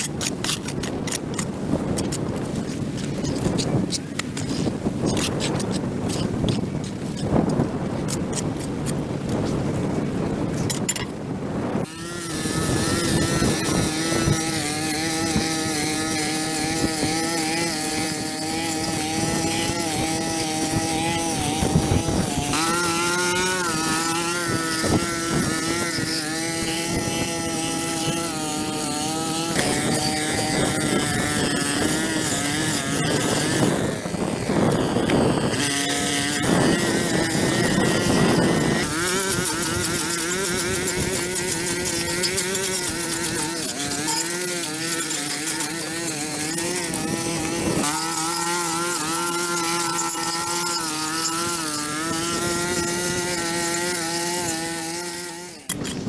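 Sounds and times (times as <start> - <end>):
handheld power tool engine running: 0.0 - 9.6, 11.8 - 56.0.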